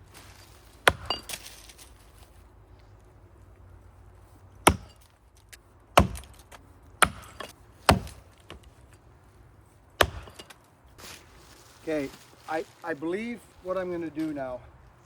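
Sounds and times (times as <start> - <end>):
axe chopping tree trunk: 0.8 - 1.7, 4.6 - 5.1, 6.0 - 8.6, 10.0 - 10.6.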